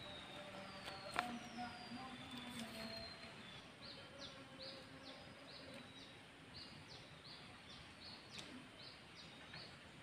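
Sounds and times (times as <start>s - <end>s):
faint click: 8.3s - 8.6s.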